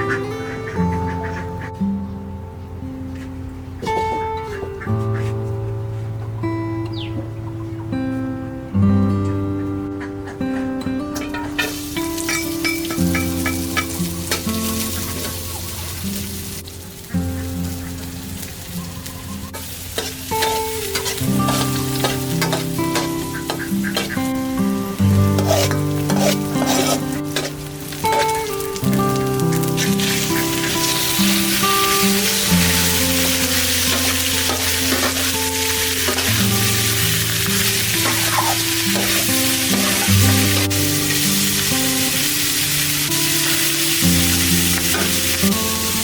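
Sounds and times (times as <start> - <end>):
soft background music: 0.0 - 46.0
food sizzling in a pan: 11.6 - 46.0
utensil scraping a pan: 25.2 - 28.4.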